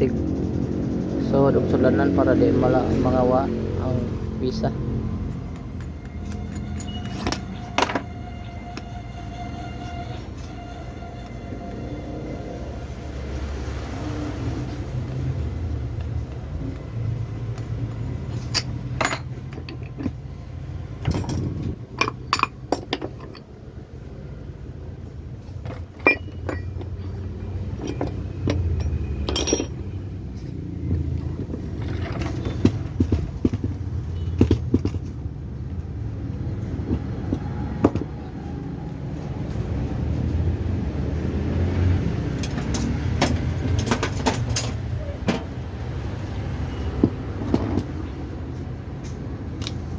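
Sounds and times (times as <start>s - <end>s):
metal tools clinking: 5.2s - 8.9s, 17.5s - 23.6s, 25.5s - 35.3s, 42.3s - 45.6s.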